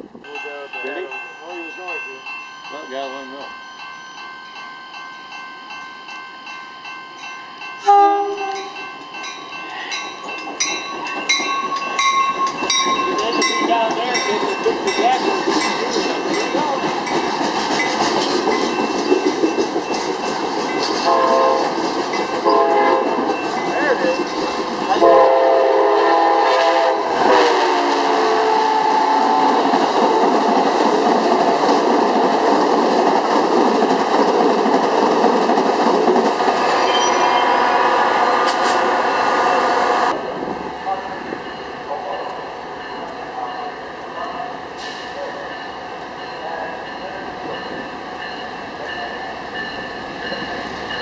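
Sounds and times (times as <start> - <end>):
passing train rush and wheel clatter: 0.0 - 51.0
train horn blasts: 7.8 - 8.8, 21.0 - 21.7, 22.4 - 23.2, 25.0 - 29.7.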